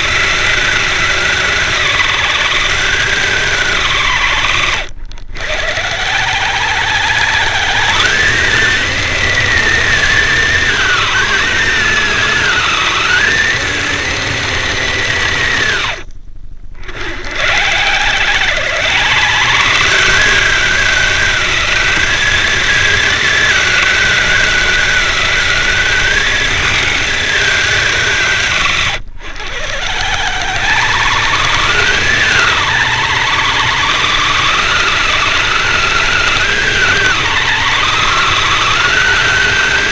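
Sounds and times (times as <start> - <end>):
electric motor whining: 0.0 - 39.9.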